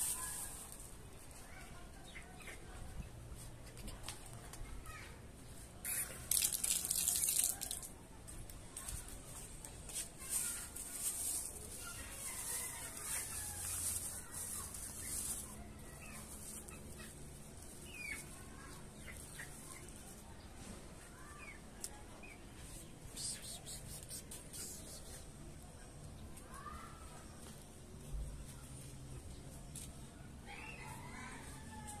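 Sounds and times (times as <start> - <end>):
rustling handling noise: 0.0 - 1.8, 6.3 - 18.5.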